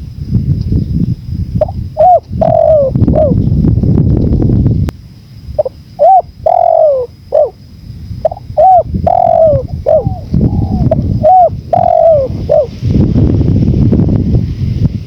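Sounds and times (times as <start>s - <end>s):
wind rumble: 0.0s - 15.0s
dove cooing: 1.6s - 3.4s, 5.6s - 7.6s, 8.2s - 12.7s.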